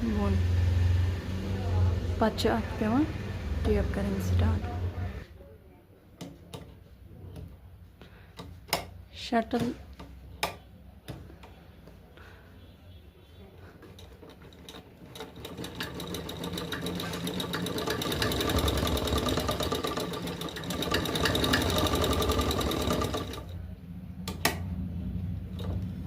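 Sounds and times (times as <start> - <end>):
sewing machine stitching: 13.8 - 23.6, 25.5 - 26.0.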